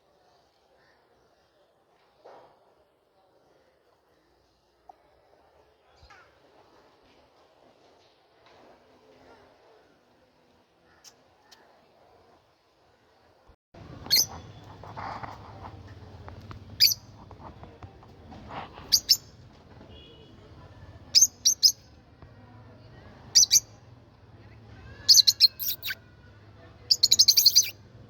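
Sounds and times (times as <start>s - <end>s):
bird chirping: 14.0s - 14.8s, 16.7s - 17.1s, 18.8s - 19.3s, 21.1s - 21.8s, 23.3s - 23.7s, 25.0s - 26.0s, 26.9s - 27.8s.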